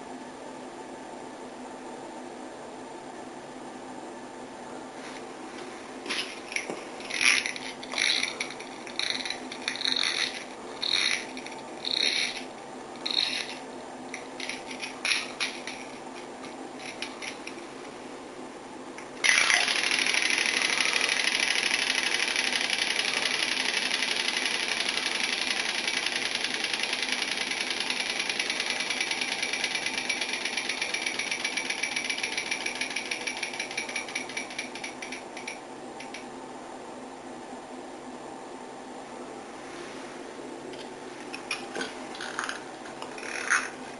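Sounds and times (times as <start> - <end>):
short rattling noises: 6.0 - 13.6.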